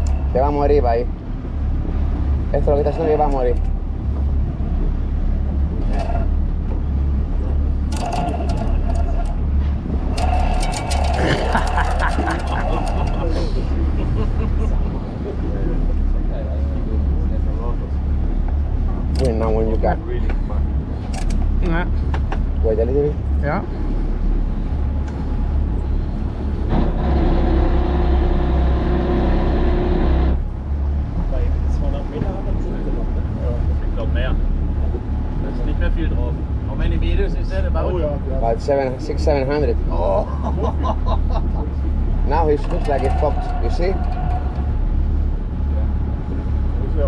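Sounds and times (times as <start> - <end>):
steady pitched whine: 0.0 - 20.7
boat engine droning: 0.0 - 47.0.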